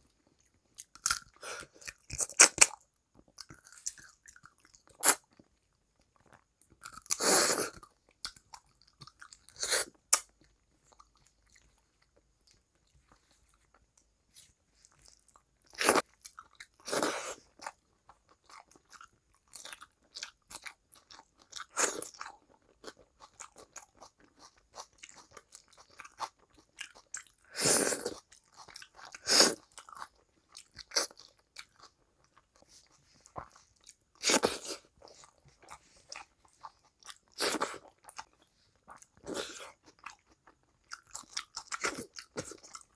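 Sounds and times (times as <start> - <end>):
crunchy bites and chewing: 0.7 - 5.5, 14.4 - 42.9.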